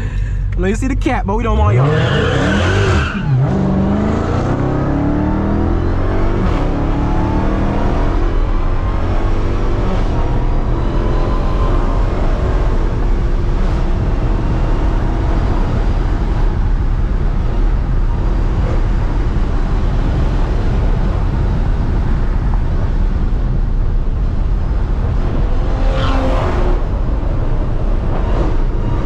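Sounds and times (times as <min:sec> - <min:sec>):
road noise: 0:00.0 - 0:29.0.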